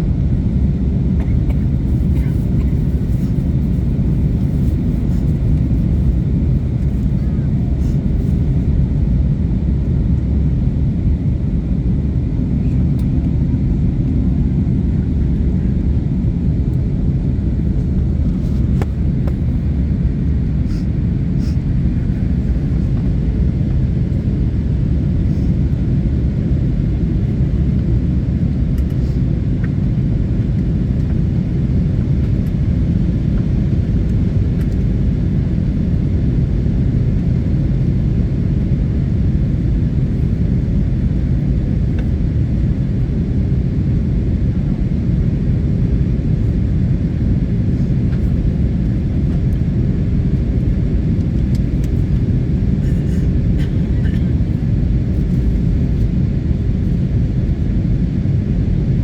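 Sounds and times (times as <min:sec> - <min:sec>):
jet engines rumbling: 0:00.0 - 0:59.0.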